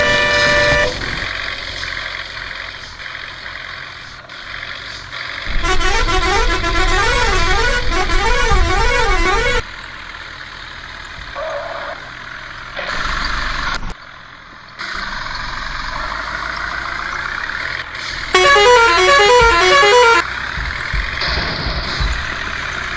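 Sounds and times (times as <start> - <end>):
musical horn tune: 0.0 - 1.1, 5.5 - 9.6, 18.3 - 20.2
vehicle road noise: 0.0 - 22.9.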